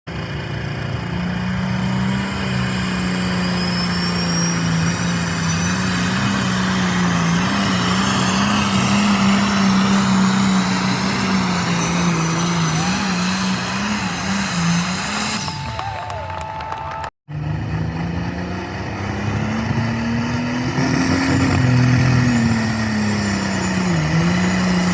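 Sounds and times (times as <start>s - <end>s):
tractor engine running hard: 0.1s - 16.3s.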